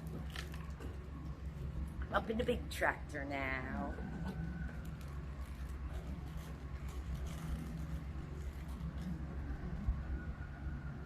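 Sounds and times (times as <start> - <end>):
low mechanical rumble: 0.0 - 11.0.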